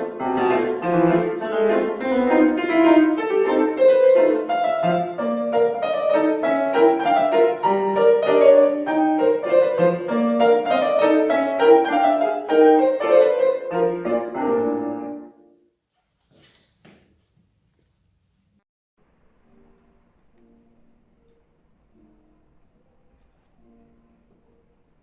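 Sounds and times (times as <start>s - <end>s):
piano playing classical piece: 0.0s - 15.6s.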